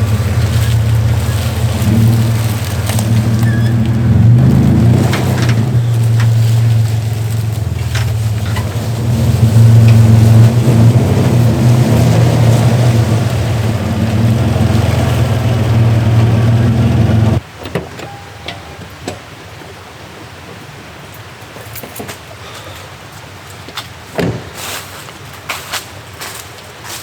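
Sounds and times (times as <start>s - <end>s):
pickup truck engine running: 0.0s - 17.4s.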